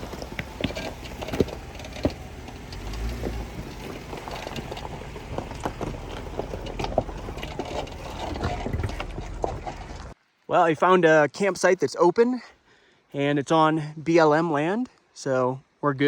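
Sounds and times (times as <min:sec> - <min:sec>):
engine rumble: 0:00.0 - 0:10.2
knocks and rattles: 0:00.0 - 0:10.2.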